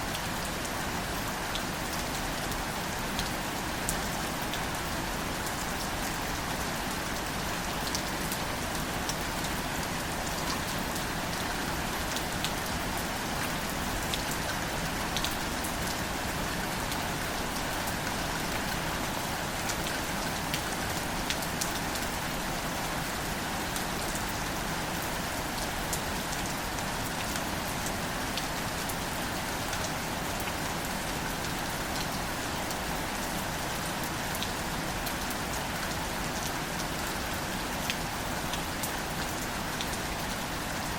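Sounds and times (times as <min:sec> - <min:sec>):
rain falling on foliage: 0:00.0 - 0:40.9.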